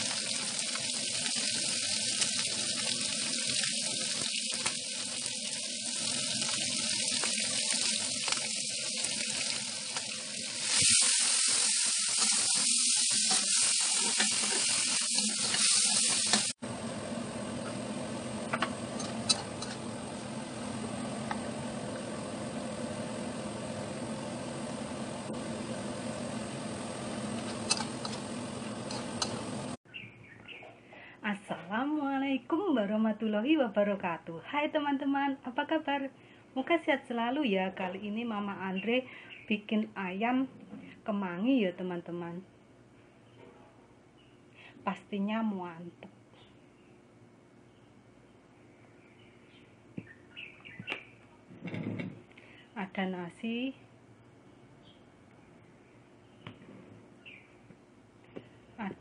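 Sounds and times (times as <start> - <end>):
chicken sizzling in a wok: 0.0 - 29.8.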